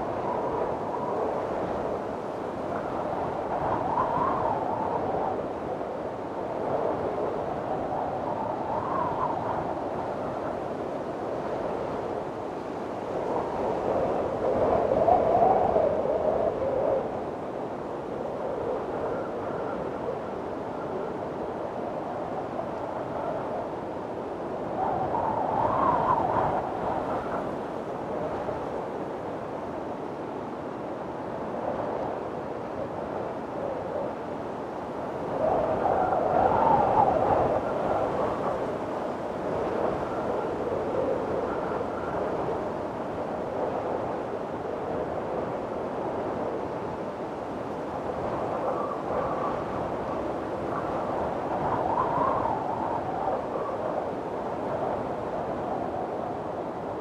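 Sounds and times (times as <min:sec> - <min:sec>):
strong wind blowing: 0:00.0 - 0:57.0
faint wind whistle: 0:13.1 - 0:57.0.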